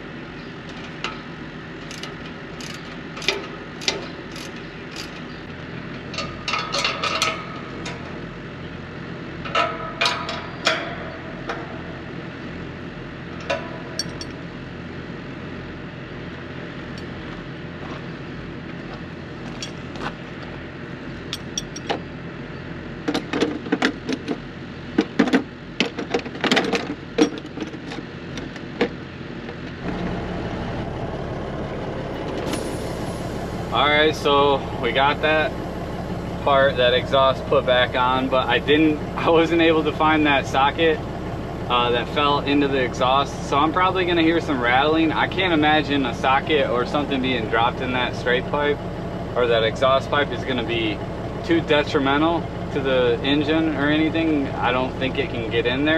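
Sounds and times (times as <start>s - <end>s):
metal parts clanking: 0.7s - 5.4s, 6.0s - 8.0s, 13.4s - 14.4s, 19.5s - 20.0s, 21.3s - 22.0s
steady low hum: 27.0s - 55.9s.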